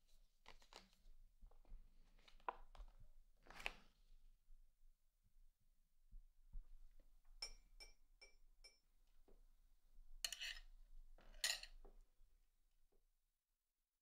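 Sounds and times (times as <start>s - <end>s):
spoon scraping: 10.3s - 11.8s.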